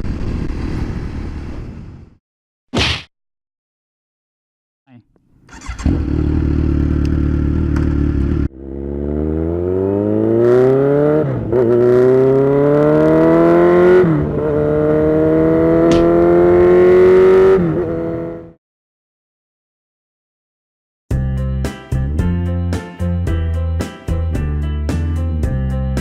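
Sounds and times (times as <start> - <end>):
motorcycle engine accelerating: 5.4 - 18.6.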